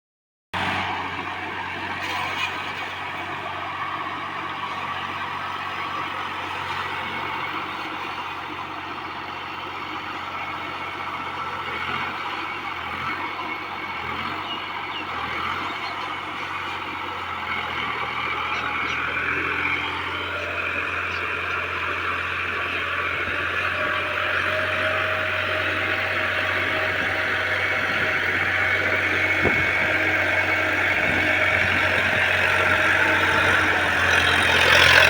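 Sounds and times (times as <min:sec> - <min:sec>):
tractor engine running: 0:00.6 - 0:35.0.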